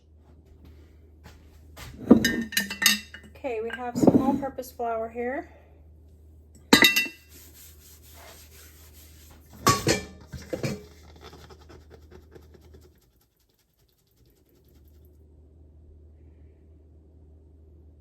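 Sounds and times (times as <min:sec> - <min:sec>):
containers set down on countertop: 0:02.0 - 0:02.6
light scratching and tapping: 0:03.7 - 0:04.6, 0:06.8 - 0:15.1.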